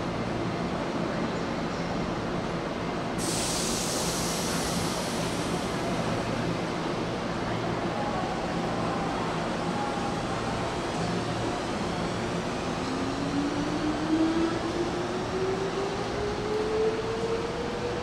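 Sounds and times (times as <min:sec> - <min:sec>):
high air hiss: 0:03.2 - 0:06.2.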